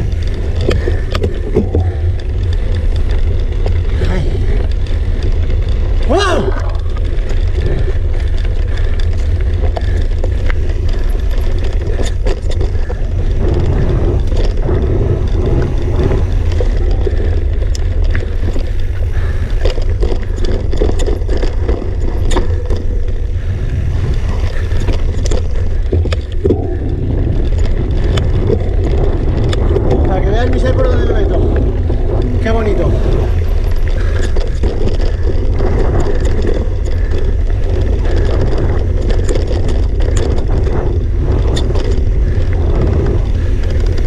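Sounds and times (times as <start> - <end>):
bike rattling and clicking: 0.0 - 44.0
bike tyres crunching on rocks: 0.0 - 44.0
wind buffeting microphone: 0.0 - 44.0.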